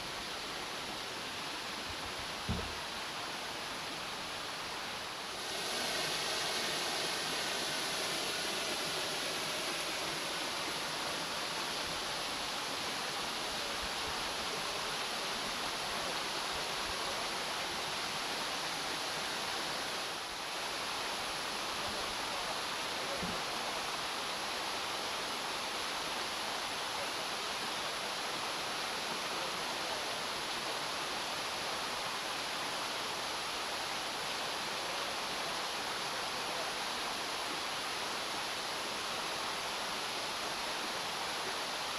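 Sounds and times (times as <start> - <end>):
waterfall rushing: 0.0 - 41.9
short thump: 2.5 - 2.8.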